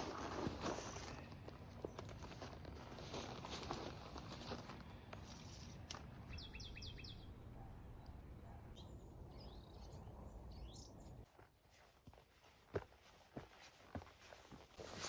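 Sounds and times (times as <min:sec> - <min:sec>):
bird high chirps: 0:06.3 - 0:11.2.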